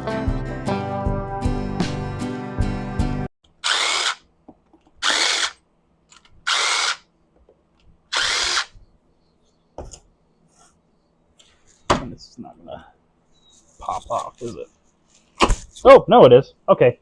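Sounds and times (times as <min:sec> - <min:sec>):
power drill bursts: 0:03.6 - 0:04.2, 0:05.0 - 0:05.6, 0:06.4 - 0:07.0, 0:08.1 - 0:08.8.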